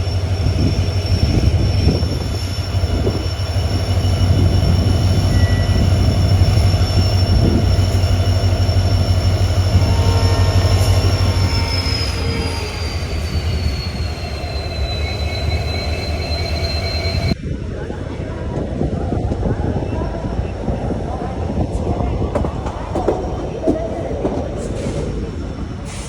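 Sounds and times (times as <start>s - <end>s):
high wheel squeal: 0.0s - 17.4s
train wheels rumbling on rail: 0.0s - 17.4s, 18.4s - 26.0s.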